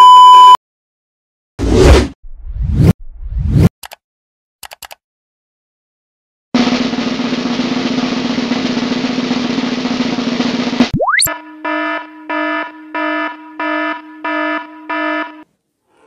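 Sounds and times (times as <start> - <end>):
quick clicks: 4.6 - 5.0
snare drum roll: 6.6 - 10.9.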